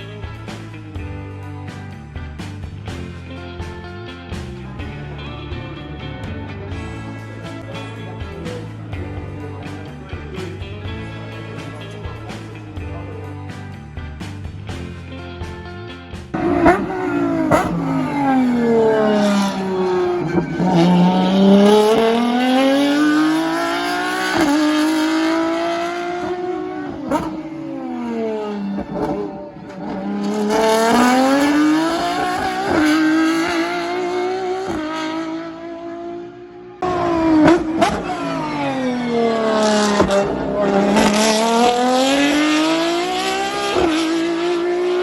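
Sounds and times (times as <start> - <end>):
racing car engine revving: 16.3 - 45.0.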